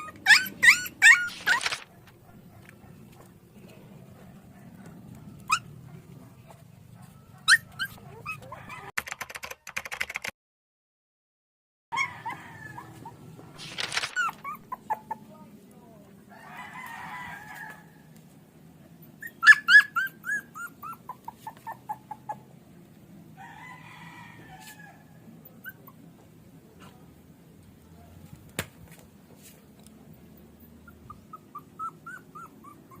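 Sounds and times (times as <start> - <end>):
puppy yelping and whimpering: 0.0 - 2.0, 5.4 - 5.8, 7.3 - 9.0, 11.9 - 15.3, 19.0 - 22.5, 25.4 - 26.2, 30.6 - 33.0
rooster crowing: 8.4 - 8.9, 12.0 - 13.2, 16.3 - 18.1, 23.4 - 25.3.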